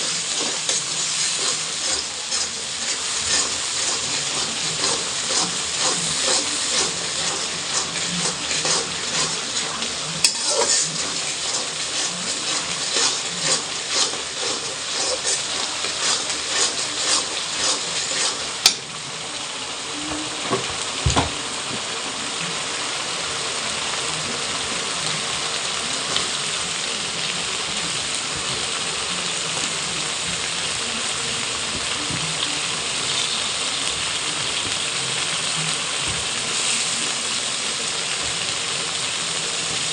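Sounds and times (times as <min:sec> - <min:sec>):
spatula scraping a pan: 0:00.0 - 0:18.9
food sizzling in a frying pan: 0:00.0 - 0:39.9.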